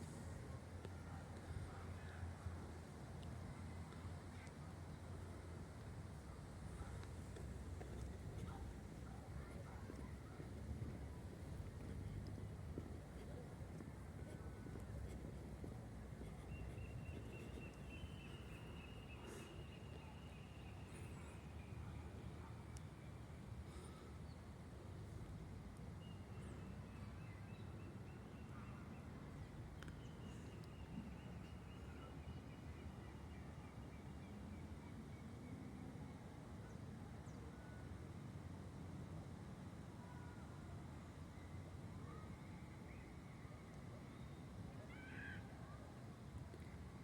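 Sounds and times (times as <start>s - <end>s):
outdoor ambient noise: 0.0s - 47.0s
steady low rumble: 6.5s - 19.8s.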